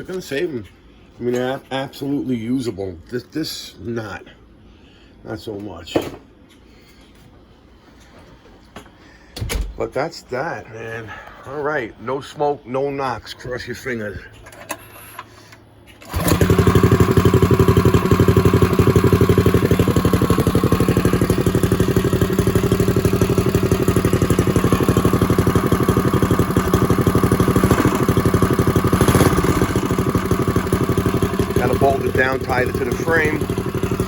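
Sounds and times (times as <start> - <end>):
small engine running: 16.0 - 34.0.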